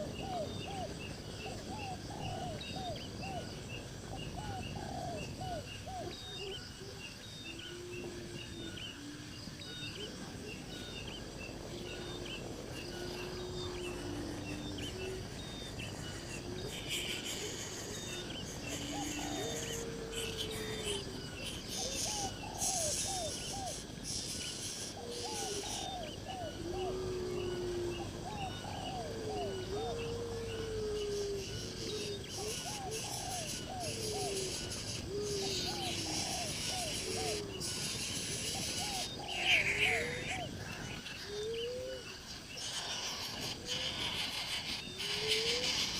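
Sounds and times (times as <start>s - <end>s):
birds calling: 0.0s - 45.9s
steady insect buzz: 0.0s - 45.9s.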